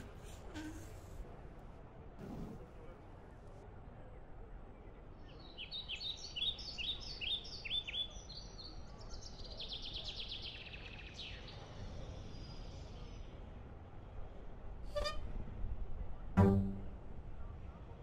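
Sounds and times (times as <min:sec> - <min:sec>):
songbirds chirping and trilling: 0:04.0 - 0:15.2.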